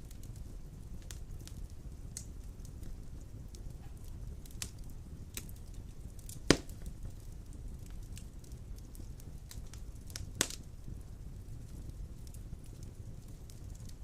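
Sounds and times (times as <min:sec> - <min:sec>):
fire crackles: 0:00.0 - 0:14.0
low rumble of flames: 0:00.0 - 0:14.0
loud sharp pop of wood: 0:06.5 - 0:06.8.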